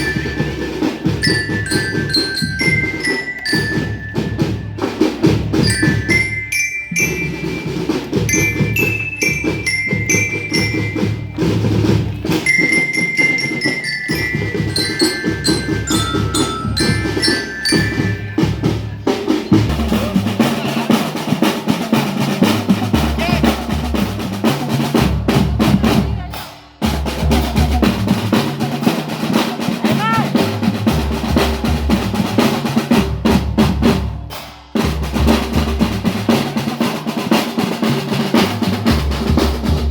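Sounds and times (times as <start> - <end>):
glockenspiel melody: 0.0 - 19.4
snare and bass drums: 0.0 - 39.9.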